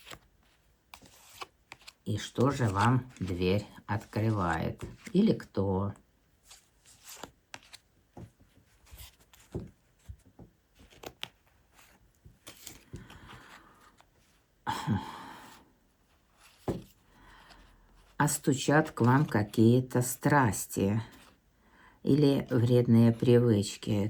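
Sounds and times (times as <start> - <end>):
cards rustling: 0.0 - 14.5, 16.1 - 20.2
cards tapping and clicking: 6.5 - 14.1, 16.6 - 17.0.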